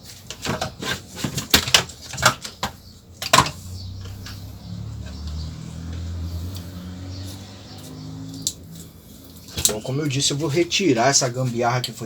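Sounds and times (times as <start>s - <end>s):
parts and tools clattering: 0.0s - 4.5s.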